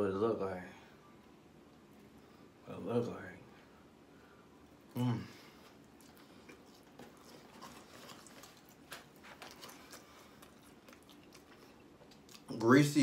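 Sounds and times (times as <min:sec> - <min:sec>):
chewing and lip-smacking: 0:05.6 - 0:12.6.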